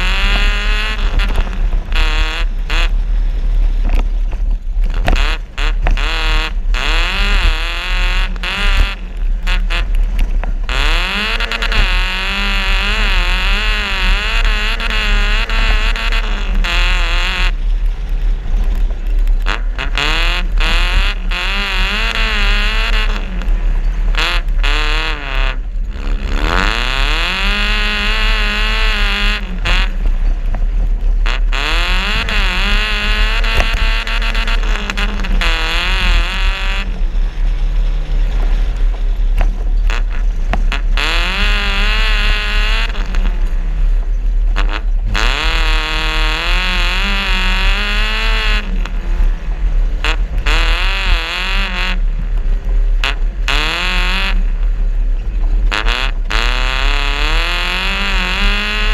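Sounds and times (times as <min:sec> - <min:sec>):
engine revving: 0:00.0 - 0:54.9, 0:55.5 - 0:58.9.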